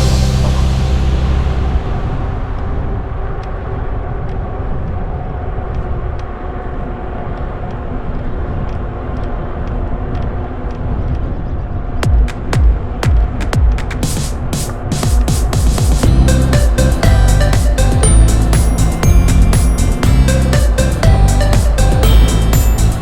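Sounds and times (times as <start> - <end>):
rumble of wind and tyres: 0.0 - 12.1.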